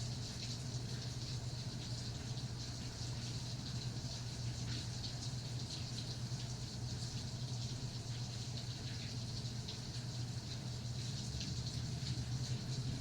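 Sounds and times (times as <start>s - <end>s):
rain pattering: 10.9s - 13.0s.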